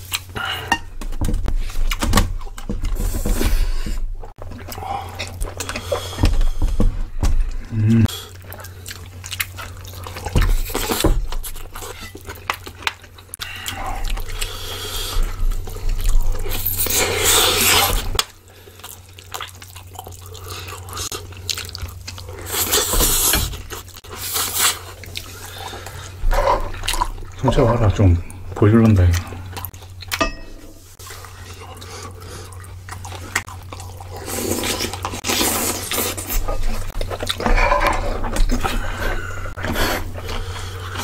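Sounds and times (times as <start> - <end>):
wet chewing and mouth noises: 0.0 - 0.8, 4.2 - 41.0
low hum: 19.9 - 41.0.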